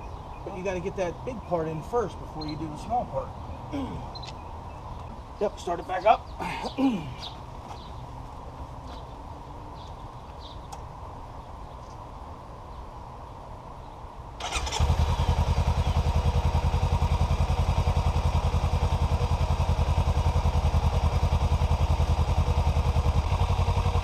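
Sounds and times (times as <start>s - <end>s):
motorcycle engine idling: 14.4s - 24.0s.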